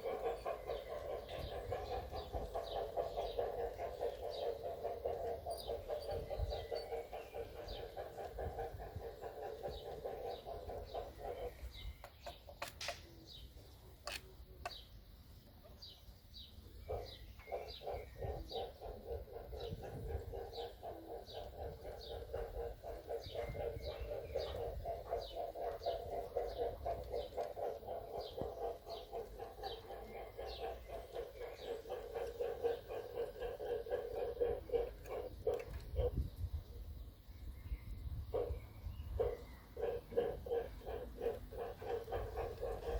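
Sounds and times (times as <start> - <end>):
model steam locomotive chuffing: 0.0 - 11.9, 17.0 - 36.1, 39.8 - 42.9
small birds chirping: 0.0 - 42.9
sharp clicks: 12.0 - 13.1, 14.0 - 14.9.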